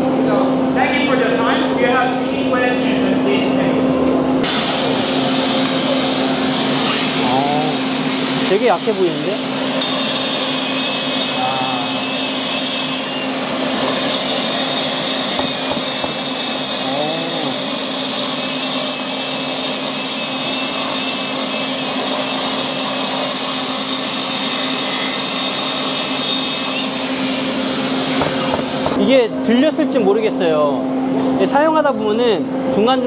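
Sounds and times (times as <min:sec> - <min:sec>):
power tool motor whining: 0:04.4 - 0:29.0.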